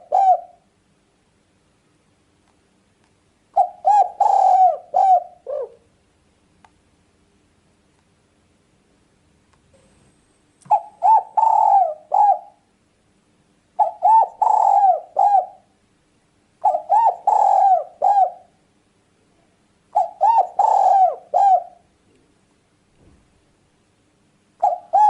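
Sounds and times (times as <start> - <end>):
dove cooing: 0.0 - 0.7, 3.6 - 5.9, 10.7 - 12.7, 13.8 - 15.7, 16.6 - 18.6, 19.9 - 21.9, 24.6 - 25.0.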